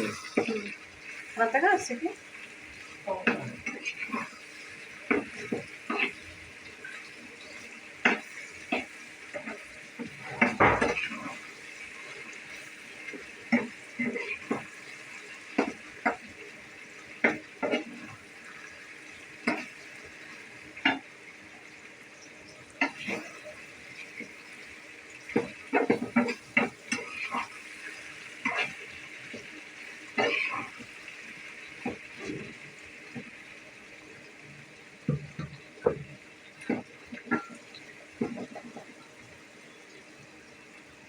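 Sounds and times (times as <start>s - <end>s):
dishes and utensils clinking: 10.2s - 11.2s.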